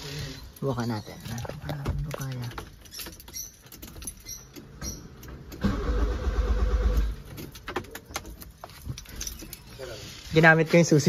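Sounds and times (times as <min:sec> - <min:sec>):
car starter cranking engine: 0:05.4 - 0:07.3.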